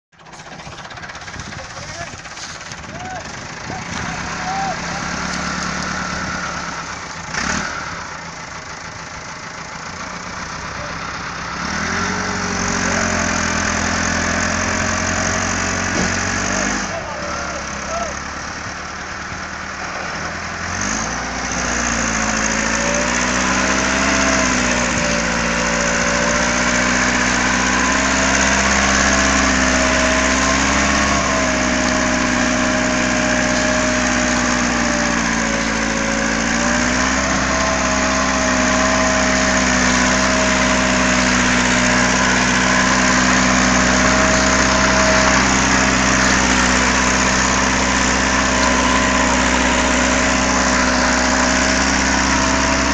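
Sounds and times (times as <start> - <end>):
tractor engine running: 0.0 - 52.9.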